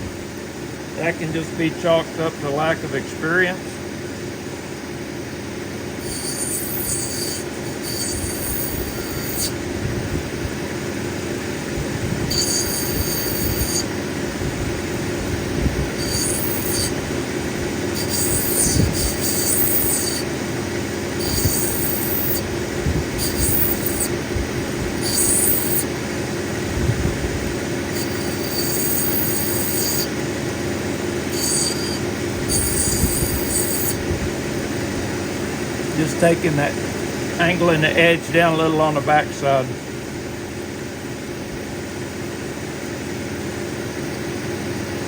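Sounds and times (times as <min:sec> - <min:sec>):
grinding machine running: 0:00.0 - 0:45.0
high-pitched grinding squeal: 0:06.0 - 0:09.7, 0:12.2 - 0:26.1, 0:27.4 - 0:34.6.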